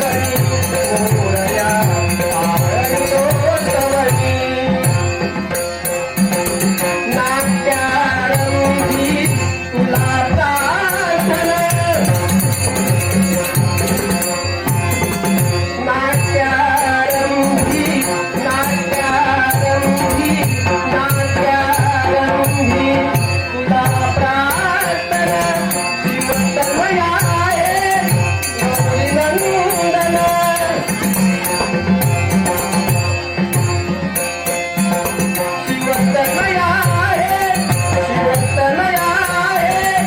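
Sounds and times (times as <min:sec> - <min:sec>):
steady cymbal rhythm: 0:00.0 - 0:40.0
man singing a devotional hymn: 0:07.1 - 0:12.2.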